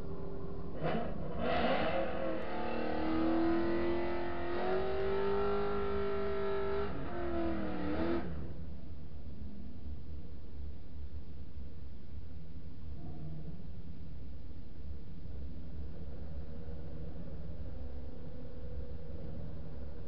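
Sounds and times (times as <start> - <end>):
car engine revving: 0.7 - 8.6.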